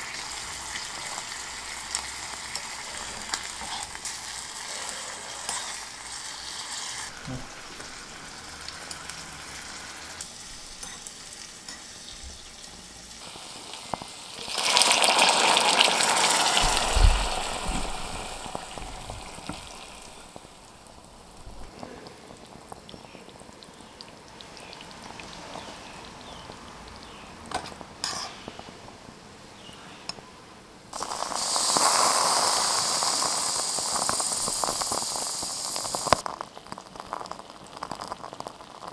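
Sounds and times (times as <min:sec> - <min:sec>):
loud hiss from hot pan: 0:00.0 - 0:21.7, 0:30.9 - 0:36.4
food sizzling in a pan: 0:00.0 - 0:29.0, 0:30.9 - 0:38.9.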